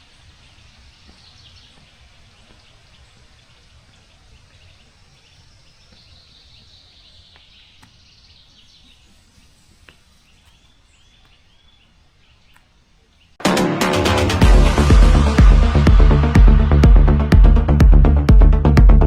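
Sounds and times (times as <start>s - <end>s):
bird calls and chirping: 0.0s - 13.4s
low steady hiss: 0.0s - 13.4s.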